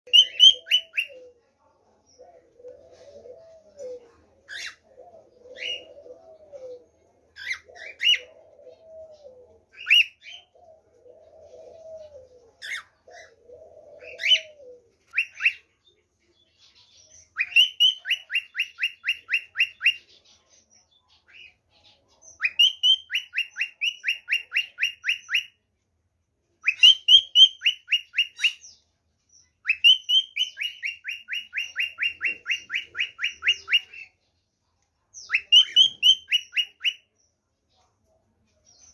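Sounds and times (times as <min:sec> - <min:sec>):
cockatiels chirping: 0:00.1 - 0:01.1, 0:04.5 - 0:04.9, 0:07.4 - 0:08.3, 0:09.7 - 0:10.6, 0:12.6 - 0:13.4, 0:14.0 - 0:15.6, 0:16.6 - 0:20.4, 0:21.2 - 0:25.6, 0:26.6 - 0:28.8, 0:29.6 - 0:34.2, 0:35.2 - 0:37.1
low cooing notes: 0:02.4 - 0:04.2, 0:04.9 - 0:06.9, 0:07.8 - 0:09.6, 0:10.6 - 0:12.6.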